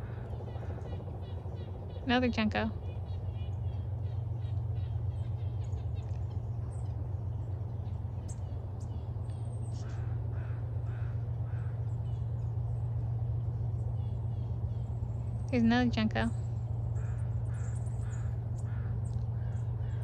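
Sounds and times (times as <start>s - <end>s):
crow cawing: 0.0s - 1.4s, 9.8s - 11.9s, 17.0s - 20.0s
small birds chipping: 0.0s - 20.0s
steady low hum: 0.0s - 20.0s.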